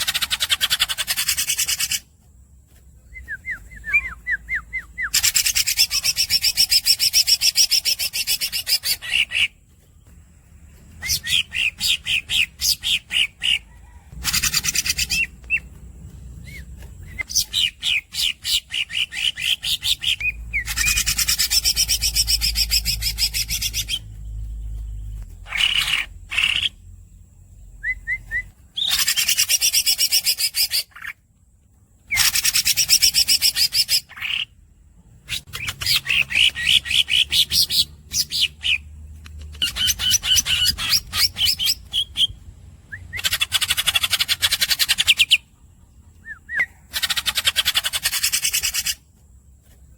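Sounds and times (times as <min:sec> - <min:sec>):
bird's squeaky notes: 0:11.0 - 0:15.7.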